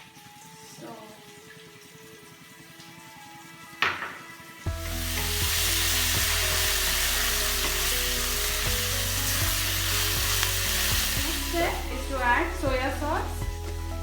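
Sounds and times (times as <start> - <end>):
paste sizzling in hot oil: 4.4 - 14.0.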